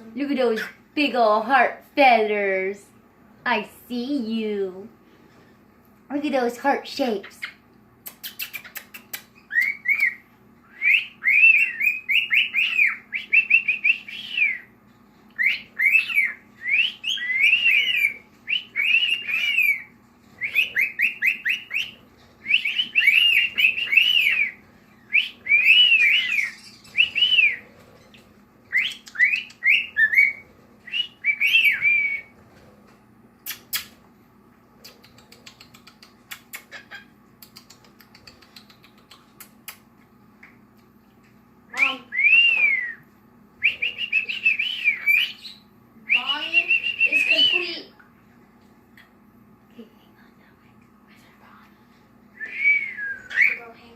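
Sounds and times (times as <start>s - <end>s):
cockatiel whistling a song: 9.4s - 14.7s, 15.4s - 28.1s, 28.7s - 32.4s, 41.8s - 43.0s, 43.6s - 47.8s, 52.4s - 53.8s.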